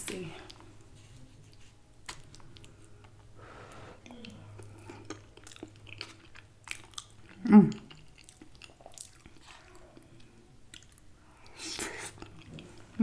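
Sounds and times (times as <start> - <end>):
person chewing food: 0.4 - 13.0
hummed mm of tasting: 3.4 - 5.2.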